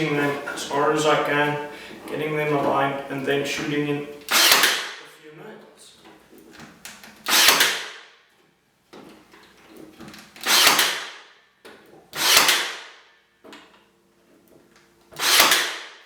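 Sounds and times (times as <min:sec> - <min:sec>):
nail gun firing: 0:04.3 - 0:05.0, 0:07.2 - 0:08.1, 0:10.4 - 0:11.4, 0:12.1 - 0:13.1, 0:15.2 - 0:16.0.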